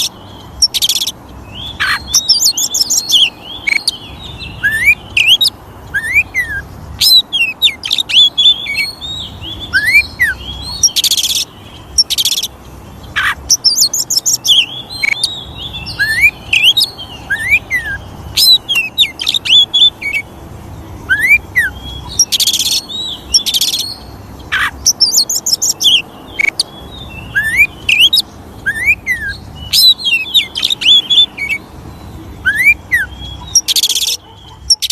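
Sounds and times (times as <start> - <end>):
bird singing whistles: 0.0 - 12.5, 13.2 - 20.2, 21.1 - 24.0, 24.6 - 34.9.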